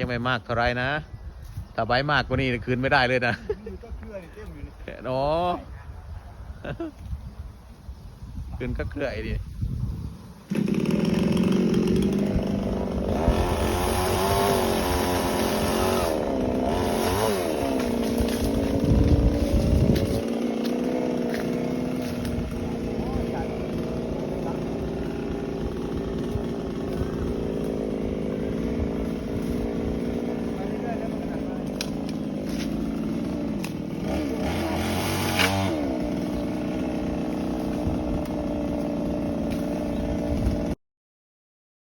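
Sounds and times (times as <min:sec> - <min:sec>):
chainsaw cutting branches: 0:10.5 - 0:40.8.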